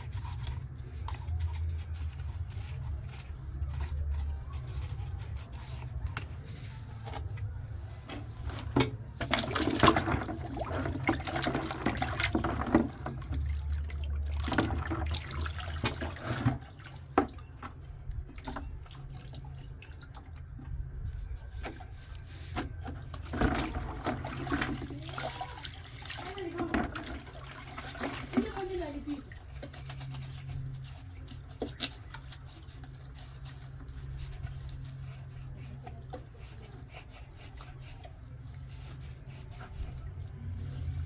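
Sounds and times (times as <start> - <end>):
low machine hum: 0.0 - 41.0
water running and splashing: 8.6 - 20.8, 23.1 - 41.0.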